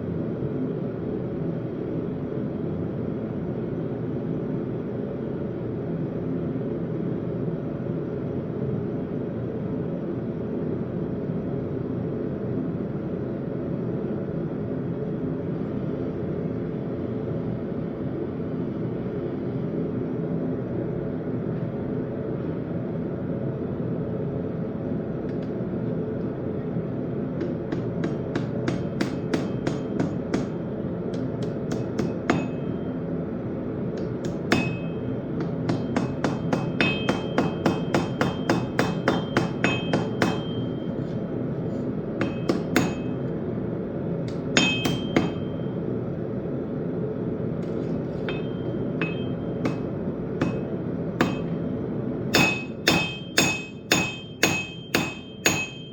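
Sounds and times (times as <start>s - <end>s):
low running noise: 0.0s - 55.9s
hammer striking anvil: 27.4s - 32.9s, 34.0s - 41.2s, 42.2s - 43.3s, 44.3s - 45.6s, 47.6s - 51.7s, 52.3s - 55.9s.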